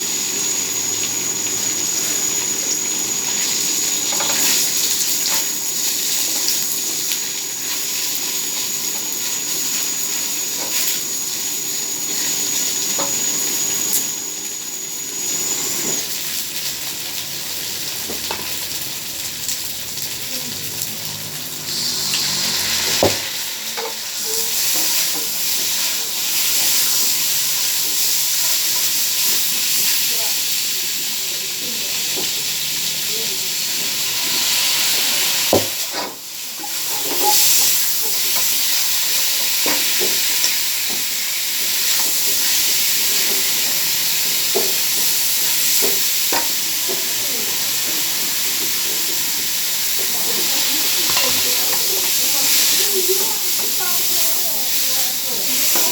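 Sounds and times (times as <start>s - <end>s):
thin high whine: 0.0s - 16.8s, 20.3s - 30.3s
food sizzling in hot oil: 0.0s - 55.9s.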